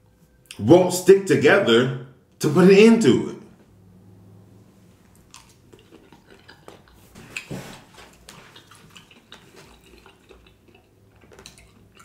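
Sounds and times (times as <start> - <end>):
man chewing with wet clicks: 5.0 - 12.0.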